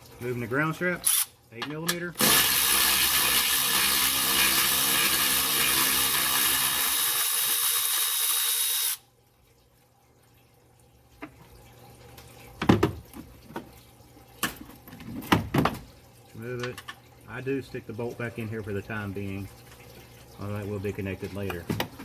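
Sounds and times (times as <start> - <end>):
power tool running: 2.2 - 9.0.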